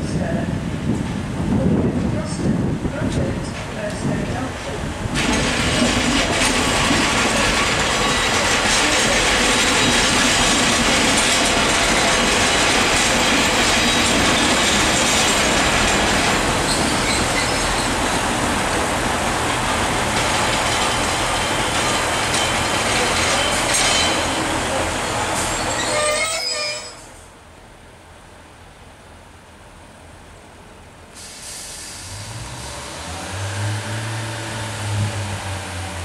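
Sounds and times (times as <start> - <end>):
wheels clattering on rails: 3.4 - 26.6
diesel train engine running: 4.5 - 26.2.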